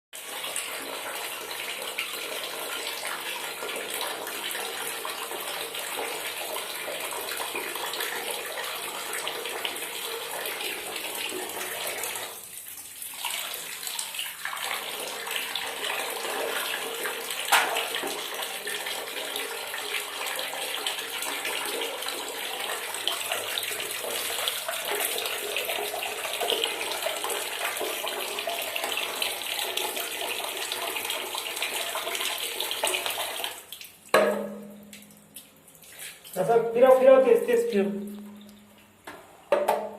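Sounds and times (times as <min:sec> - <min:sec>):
water running from a tap: 0:00.2 - 0:38.7
sharp knock: 0:17.5 - 0:17.9.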